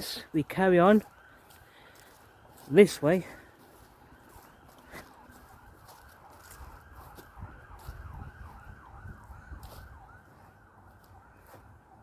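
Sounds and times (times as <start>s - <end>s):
faint siren yelping: 0.0s - 12.0s
footsteps crunching on path: 0.0s - 12.0s.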